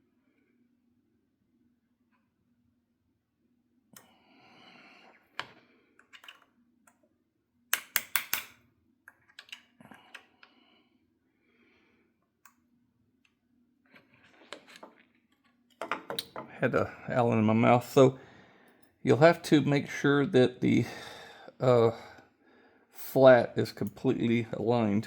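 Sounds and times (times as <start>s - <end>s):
sharp metal clicks: 7.7s - 8.5s.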